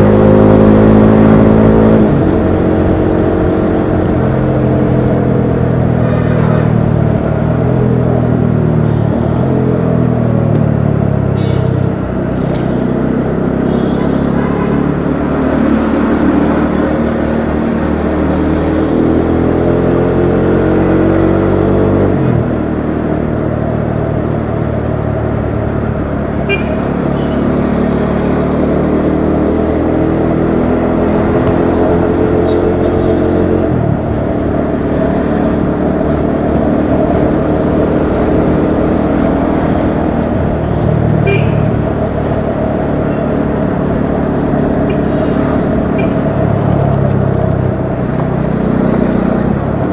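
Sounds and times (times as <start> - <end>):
motorcycle engine revving: 0.0 - 10.3, 24.2 - 49.9.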